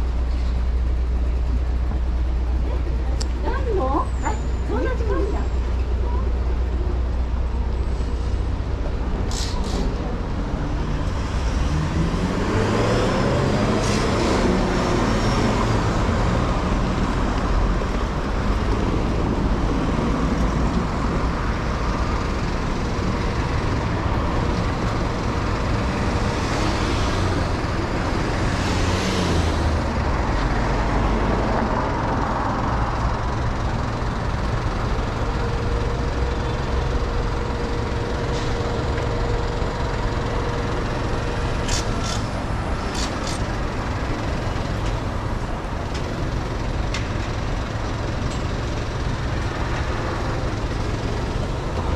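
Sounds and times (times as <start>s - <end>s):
street traffic passing: 0.0s - 51.9s
vehicle engine accelerating: 9.7s - 21.0s.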